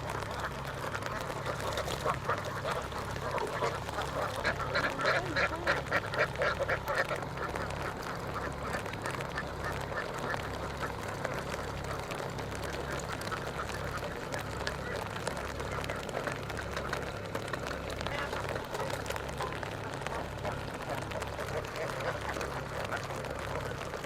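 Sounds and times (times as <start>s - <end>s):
ducks quacking: 0.0s - 24.0s
steady low rumble: 0.0s - 24.0s.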